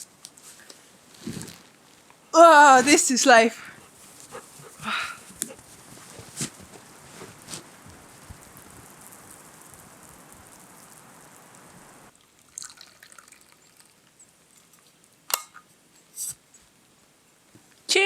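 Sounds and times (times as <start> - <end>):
drink pouring trickle: 7.8 - 14.2.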